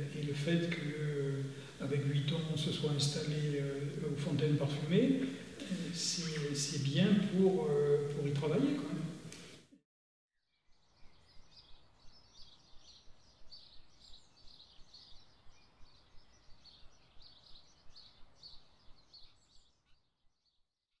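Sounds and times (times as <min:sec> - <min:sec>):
low outdoor rumble: 0:00.0 - 0:09.4
small birds chirping: 0:10.5 - 0:20.6.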